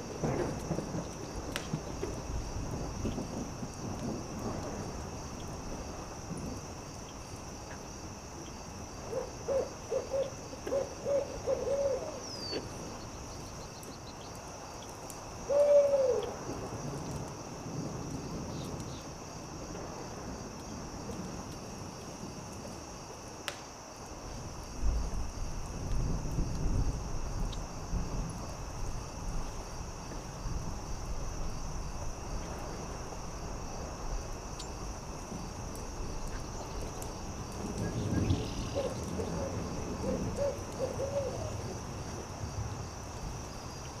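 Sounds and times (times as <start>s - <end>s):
owl hooting: 9.1s - 12.6s, 15.5s - 16.3s, 38.8s - 41.6s.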